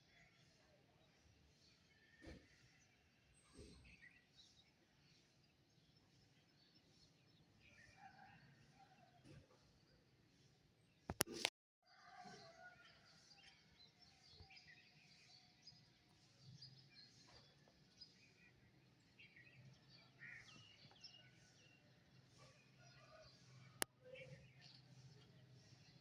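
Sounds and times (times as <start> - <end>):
sharp clicks: 11.1 - 11.5.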